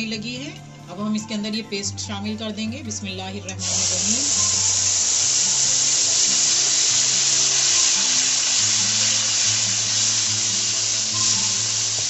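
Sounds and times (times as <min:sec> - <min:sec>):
background music: 0:00.0 - 0:12.0
onion paste sizzling in oil: 0:03.6 - 0:12.0.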